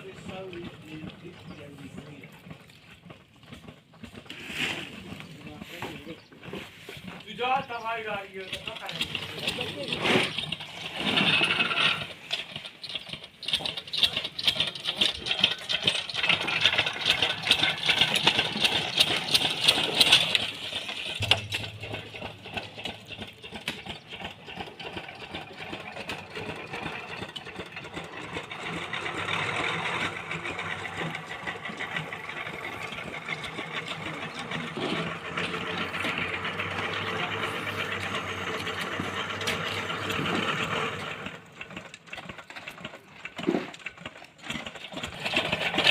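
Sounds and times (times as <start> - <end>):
mechanical rattling and clattering: 6.0 - 45.9
low engine hum: 16.3 - 41.5.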